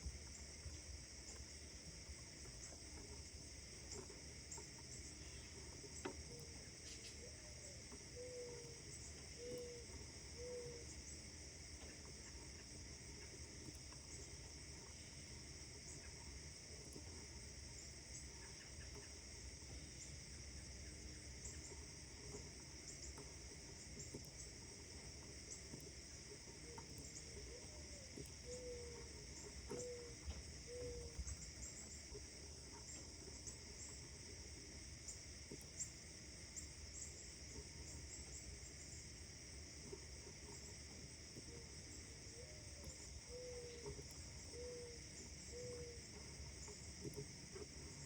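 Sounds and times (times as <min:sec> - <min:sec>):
insects chirring: 0:00.0 - 0:48.0
distant birds: 0:03.9 - 0:11.2, 0:11.8 - 0:34.0, 0:41.4 - 0:48.0.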